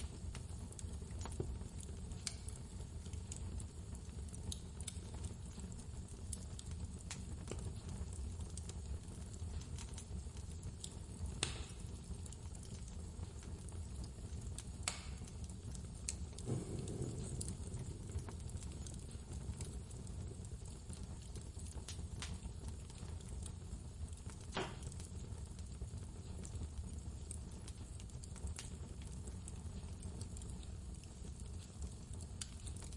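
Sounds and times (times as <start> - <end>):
wood fire crackling: 0.0 - 32.9
blizzard wind rumble: 16.4 - 19.4.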